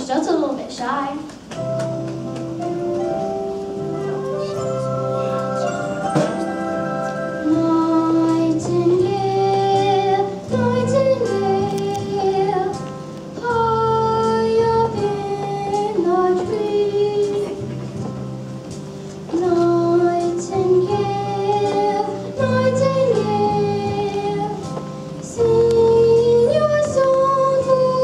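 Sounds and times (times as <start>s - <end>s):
instrumental accompaniment: 1.2s - 28.0s
child singing slowly: 19.3s - 28.0s.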